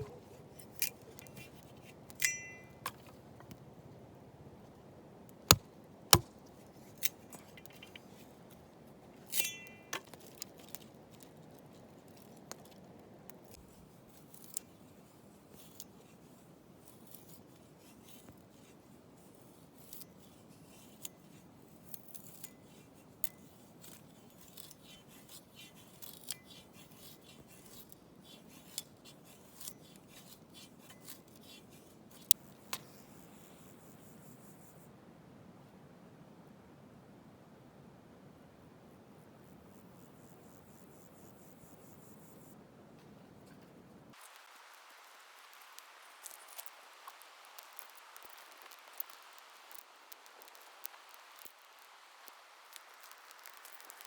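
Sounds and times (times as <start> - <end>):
metallic clink: 2.2 - 3.1, 9.3 - 10.1.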